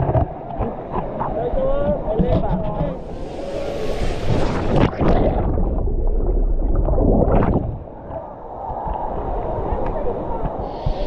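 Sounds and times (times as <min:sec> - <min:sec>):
heavy low rumble: 0:02.7 - 0:07.9.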